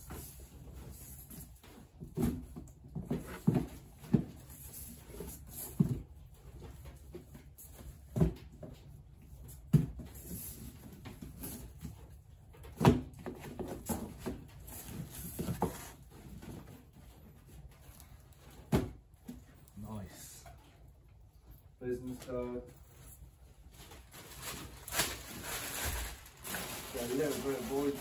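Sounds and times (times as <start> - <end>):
books knocking and thumping: 1.6 - 6.2, 7.2 - 8.8, 12.6 - 16.9, 18.4 - 19.4.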